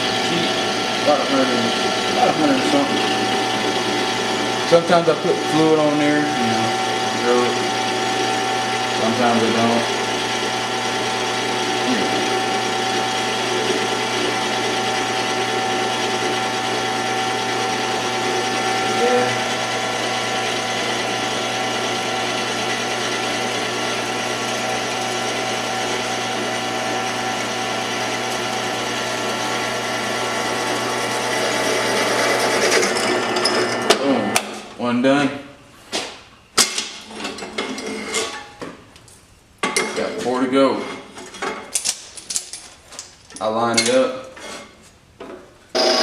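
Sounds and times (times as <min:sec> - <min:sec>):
drill press cutting metal: 0:00.0 - 0:34.6, 0:45.7 - 0:46.0.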